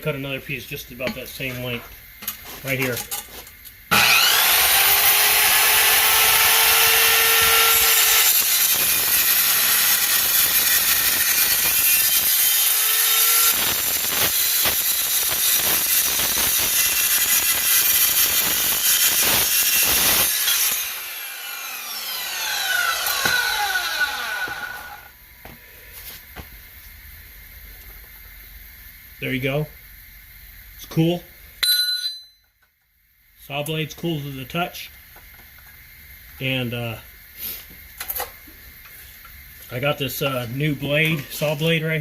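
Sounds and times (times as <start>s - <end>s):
circular saw cutting steel: 3.9s - 25.1s
saw blade spinning down: 3.9s - 25.1s.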